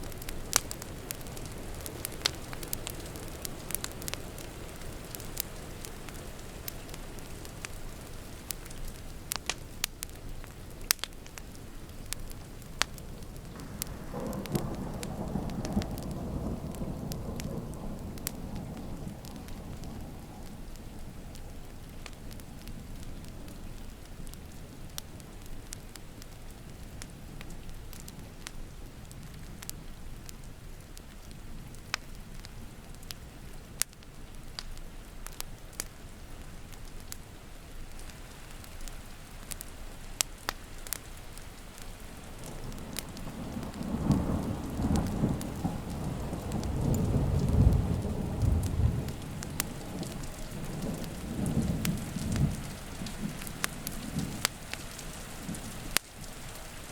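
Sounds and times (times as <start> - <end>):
steady rain: 0.0 - 56.9
wood fire crackling: 0.0 - 56.9
low roll of thunder: 12.4 - 23.5, 42.3 - 56.3.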